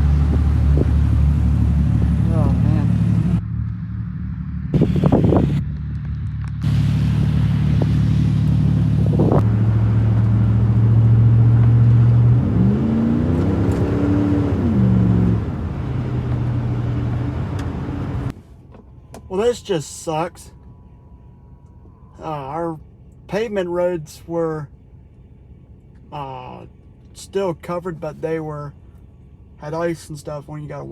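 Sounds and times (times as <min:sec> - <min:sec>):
vehicle engine revving: 0:00.0 - 0:18.4.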